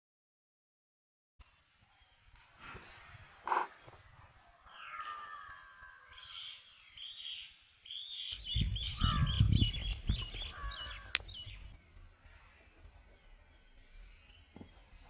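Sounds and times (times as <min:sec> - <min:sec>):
birds chirping: 0:03.4 - 0:11.8
bird falling call: 0:03.5 - 0:03.7, 0:08.8 - 0:11.6.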